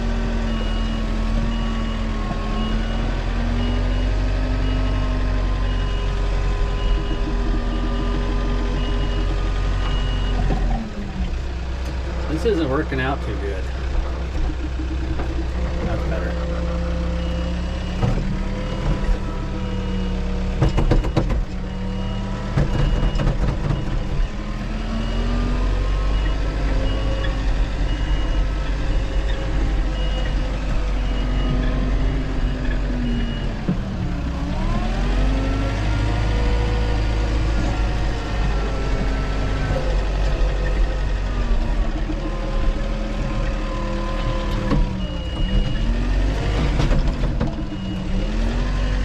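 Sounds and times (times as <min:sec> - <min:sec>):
backup alarm beeping: 0:00.5 - 0:10.5, 0:17.0 - 0:29.3, 0:47.5 - 0:49.0
machine engine under load: 0:00.5 - 0:49.0.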